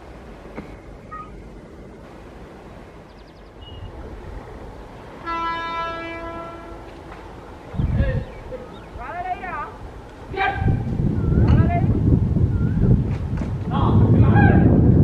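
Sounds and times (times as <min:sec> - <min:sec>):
low rumble of train: 0:00.0 - 0:15.0
locomotive horn blast: 0:05.2 - 0:07.2.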